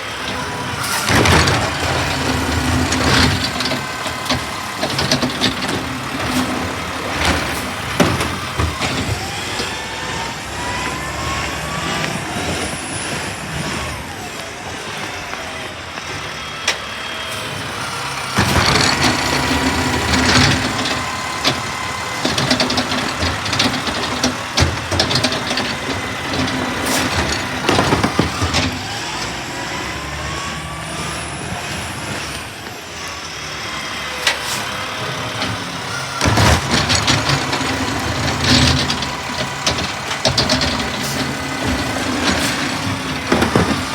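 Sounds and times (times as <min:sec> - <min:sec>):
garbage truck engine running: 0:00.0 - 0:43.9
loud clanking and banging: 0:00.1 - 0:12.7, 0:17.3 - 0:32.3, 0:34.2 - 0:43.9.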